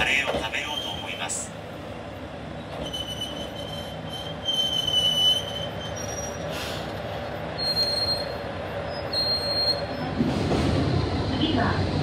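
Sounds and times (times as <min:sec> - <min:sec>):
low rumble of railcar: 0:00.0 - 0:12.0
railcar brakes squealing: 0:00.1 - 0:01.5, 0:02.6 - 0:10.5.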